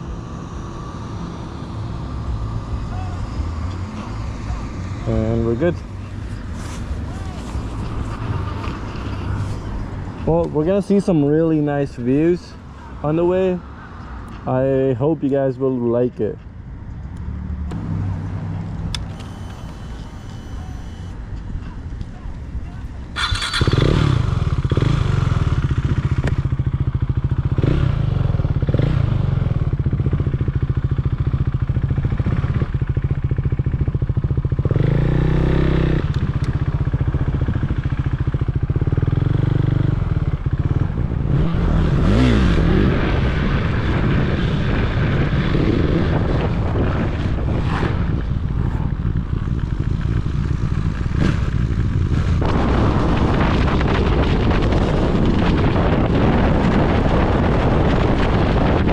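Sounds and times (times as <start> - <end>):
motorcycle engine running: 17.0 - 58.9.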